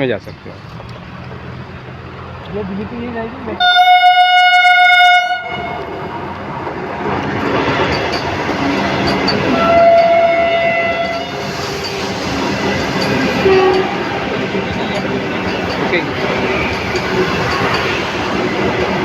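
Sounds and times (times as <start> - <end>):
train wheel and rail noise: 0.0 - 19.0
train horn blast: 3.6 - 5.9, 9.5 - 11.5, 13.4 - 14.1.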